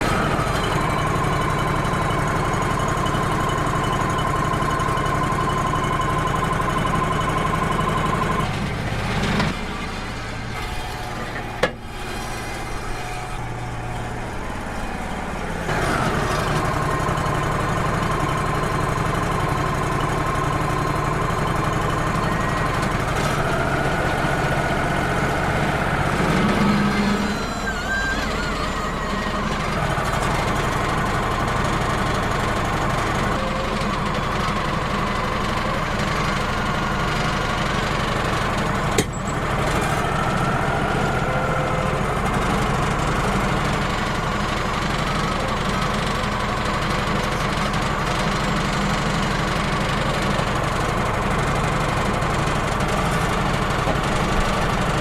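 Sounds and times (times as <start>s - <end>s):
sawmill humming with high whine: 0.0s - 55.0s.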